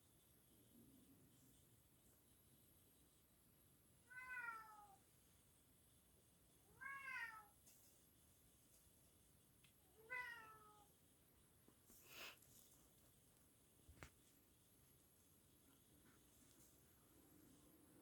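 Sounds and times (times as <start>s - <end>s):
cat meowing: 4.1s - 5.0s, 6.7s - 7.5s, 10.0s - 10.9s.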